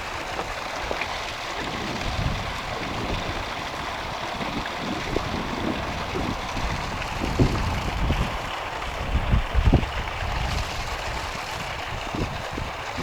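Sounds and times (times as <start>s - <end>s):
wind gusting across microphone: 0.0s - 13.0s.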